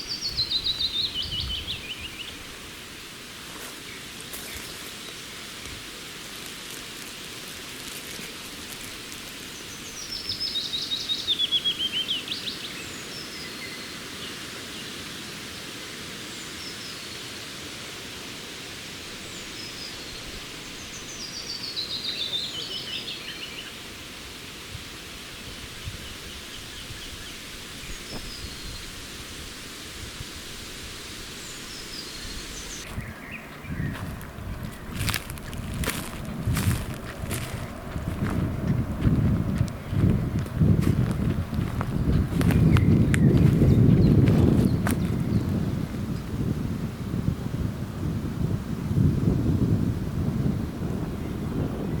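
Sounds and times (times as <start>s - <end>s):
songbird trilling: 0.0s - 2.4s
steady hiss: 0.0s - 52.0s.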